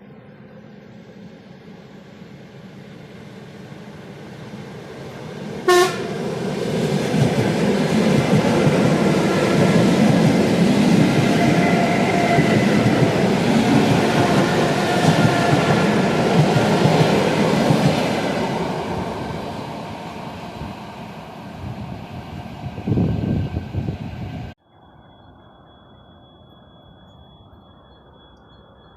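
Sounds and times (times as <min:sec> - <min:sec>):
train horn blast: 0:05.6 - 0:06.2
train wheels rumbling and clattering: 0:06.0 - 0:20.9.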